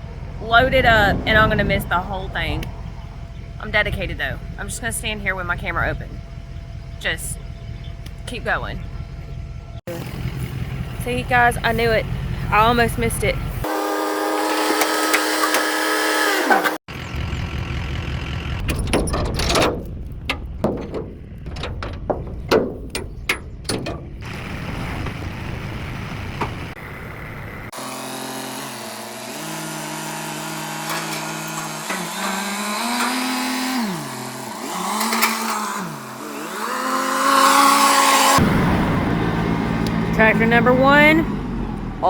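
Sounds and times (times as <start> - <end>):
tractor engine: 0.0 - 42.0
clanks and knocks: 18.6 - 24.3, 30.8 - 33.4, 34.6 - 35.8.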